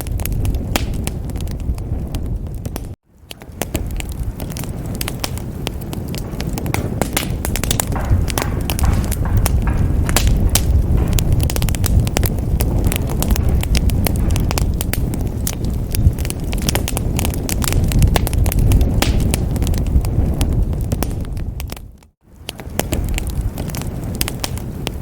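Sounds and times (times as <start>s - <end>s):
fire crackling: 0.0s - 25.0s.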